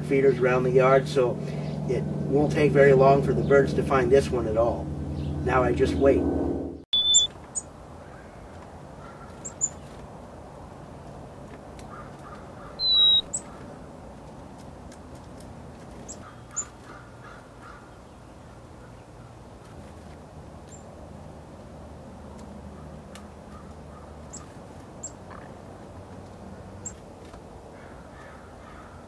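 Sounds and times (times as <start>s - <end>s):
small birds chirping: 0.0s - 6.2s, 6.9s - 29.0s
lower bird calls: 6.8s - 9.9s, 11.9s - 13.8s, 16.0s - 19.4s, 22.8s - 25.6s
clear whistled bird note: 6.9s - 7.3s.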